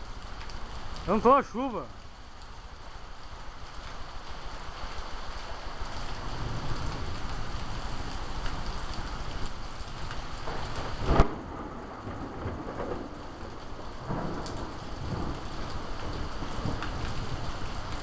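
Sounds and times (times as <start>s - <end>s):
heavy rain falling: 0.0s - 18.0s
thunderclap: 10.4s - 17.4s.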